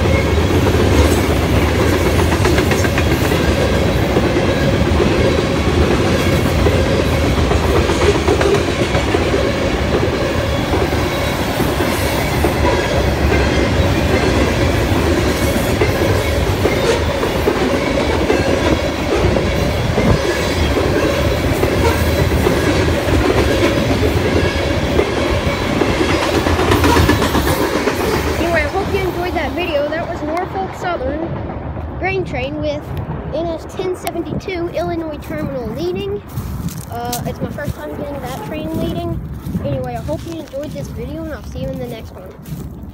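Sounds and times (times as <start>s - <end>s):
wheels clicking over rail joints: 0.0s - 31.4s
freight cars rumbling and rattling: 0.0s - 42.9s.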